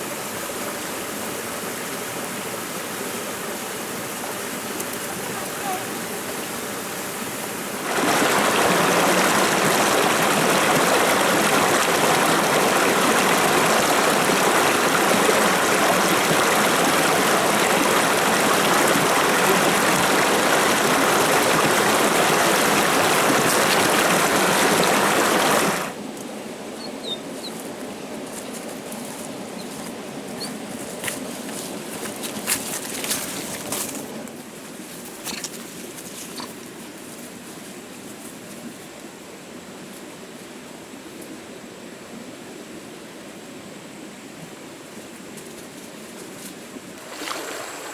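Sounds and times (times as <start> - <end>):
rushing water: 0.0 - 34.4, 46.7 - 47.9
faint bird chirps: 26.8 - 27.6.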